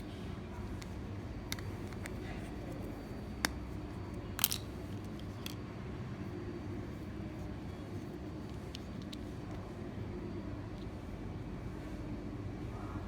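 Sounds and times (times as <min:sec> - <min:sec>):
light clicks of objects handled: 0:07.4 - 0:09.7.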